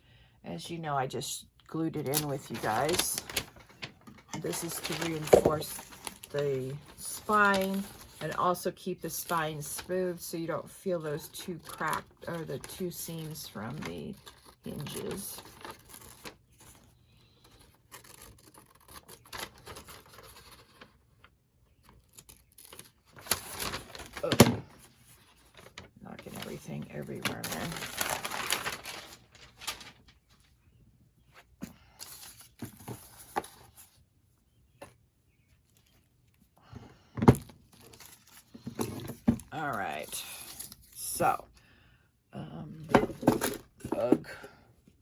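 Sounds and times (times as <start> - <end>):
paper rustling: 2.0 - 8.6, 11.6 - 30.6, 31.3 - 34.0, 37.7 - 41.0.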